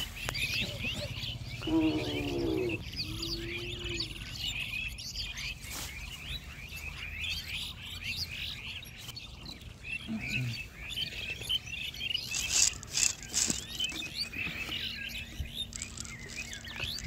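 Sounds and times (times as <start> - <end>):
loud bird call: 0.0 - 4.5
small birds chirping: 0.0 - 17.0.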